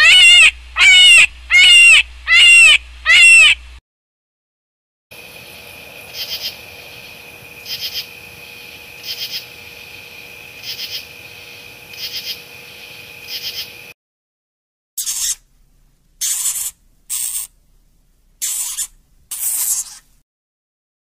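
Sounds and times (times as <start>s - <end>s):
steady hiss: 5.2s - 13.7s, 15.0s - 20.2s
insect chirping: 5.2s - 13.9s, 15.0s - 15.5s, 16.2s - 17.7s, 18.4s - 20.2s
steady high whine: 5.2s - 13.9s.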